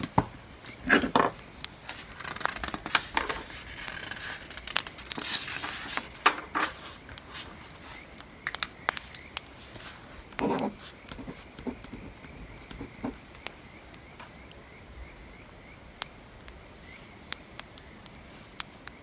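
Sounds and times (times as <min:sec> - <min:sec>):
paper rustling: 0:00.0 - 0:13.2
wood fire crackling: 0:00.0 - 0:14.6, 0:15.9 - 0:19.0
pen scratching on paper: 0:09.6 - 0:13.2.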